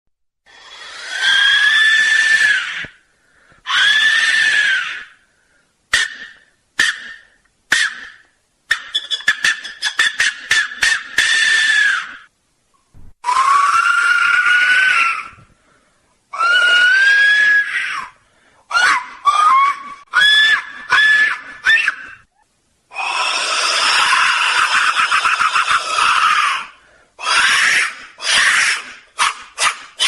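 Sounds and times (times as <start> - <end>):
shrill whistle blasts: 5.9 - 12.3, 13.2 - 15.4.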